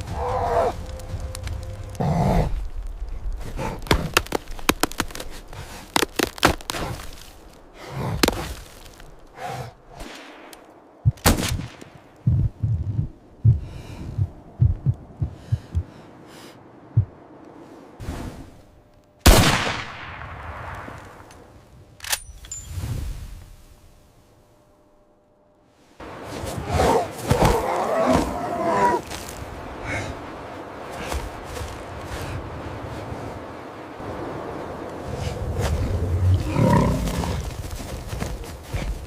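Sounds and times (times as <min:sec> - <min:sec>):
sharp knocks and dull thuds: 0:12.2 - 0:15.9.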